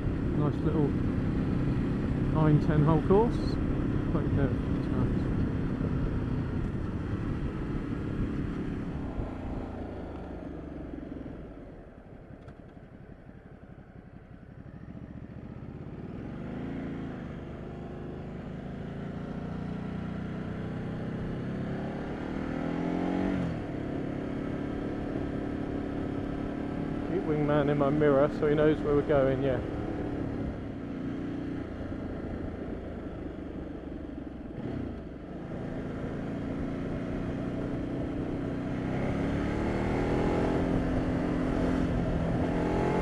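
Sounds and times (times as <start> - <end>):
motorcycle engine revving: 14.6 - 43.0.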